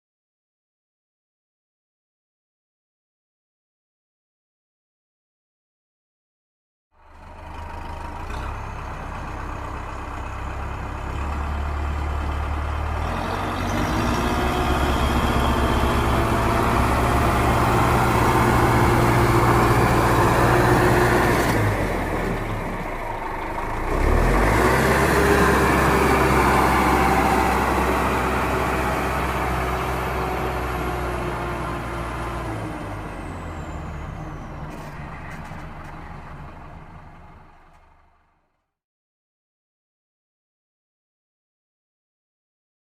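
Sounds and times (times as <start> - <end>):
tractor engine running: 7.0 - 38.6.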